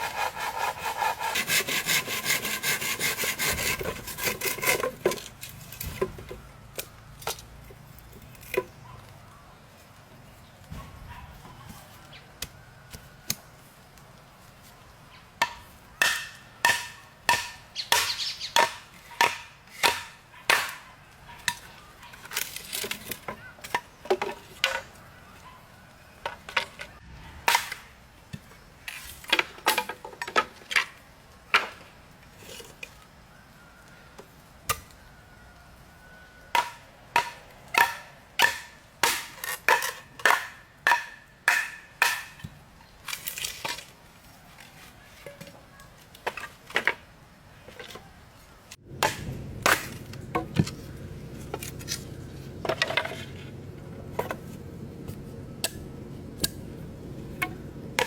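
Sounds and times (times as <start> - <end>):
blade chopping wood: 15.4 - 20.8, 49.0 - 50.8.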